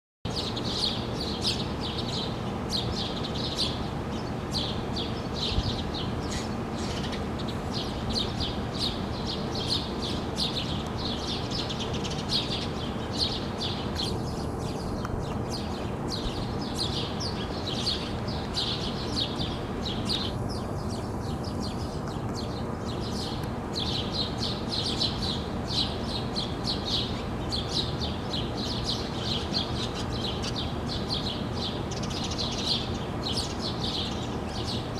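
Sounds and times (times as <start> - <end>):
small birds chirping: 0.3 - 34.9.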